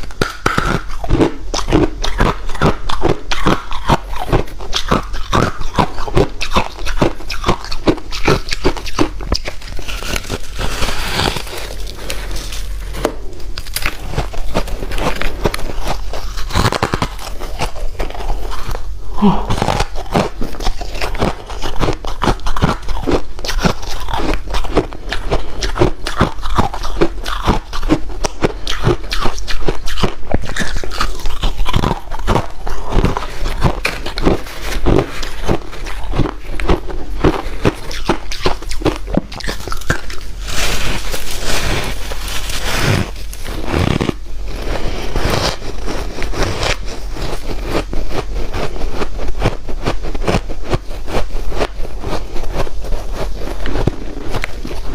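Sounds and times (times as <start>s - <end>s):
ice being chewed: 0.0s - 54.9s.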